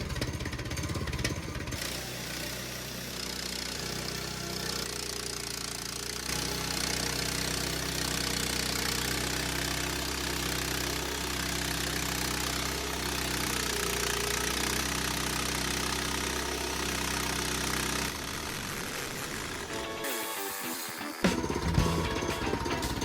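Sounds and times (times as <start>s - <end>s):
small gasoline engine running: 0.0s - 23.0s.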